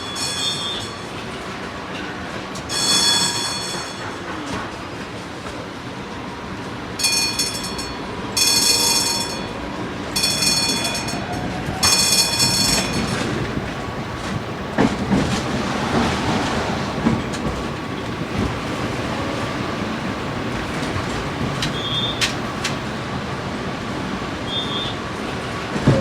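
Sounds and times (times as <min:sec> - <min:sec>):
tram bell ringing: 0:00.0 - 0:04.7, 0:06.9 - 0:23.0
tram rumbling along rails: 0:00.0 - 0:26.0
clicks over rail joints: 0:11.8 - 0:23.0.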